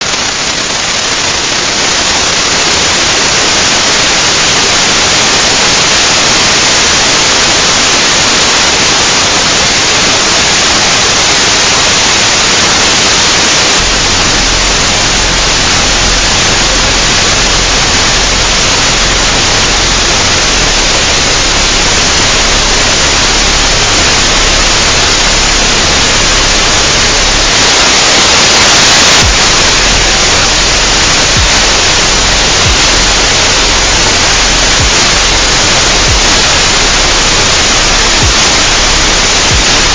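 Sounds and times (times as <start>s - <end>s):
synthetic rushing hiss: 0.0s - 39.9s
pulsing low hum: 13.8s - 27.7s, 29.2s - 39.9s.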